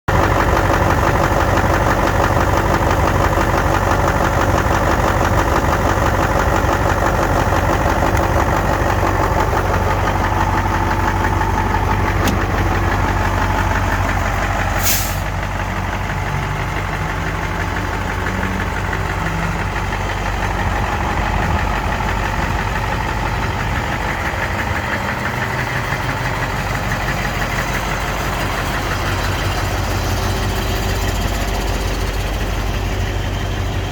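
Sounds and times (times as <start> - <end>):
truck diesel engine idling: 0.1 - 33.9
short hiss: 14.8 - 15.3.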